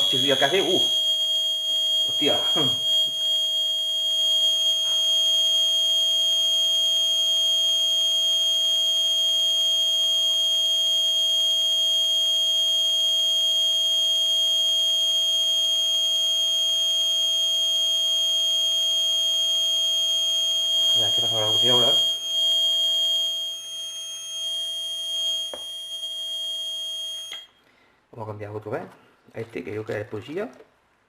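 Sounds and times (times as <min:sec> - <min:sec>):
weaker lower tone: 0:00.0 - 0:06.6, 0:20.7 - 0:26.4
high-pitched buzzer screech: 0:02.0 - 0:03.2, 0:20.8 - 0:22.4.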